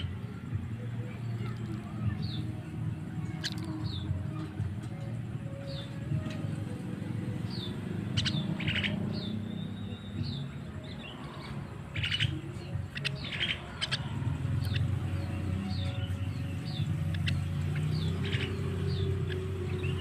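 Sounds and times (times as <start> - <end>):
harsh raspy bird calls: 8.0 - 9.4, 11.9 - 15.0.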